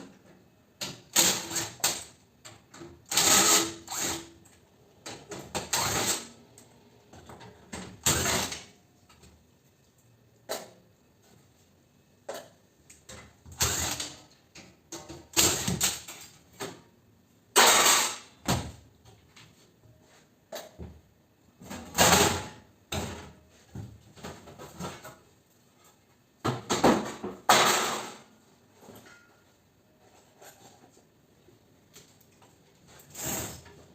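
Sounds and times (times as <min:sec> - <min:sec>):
metal clanks bangs and scrapes: 0:17.5 - 0:18.4, 0:26.6 - 0:29.5.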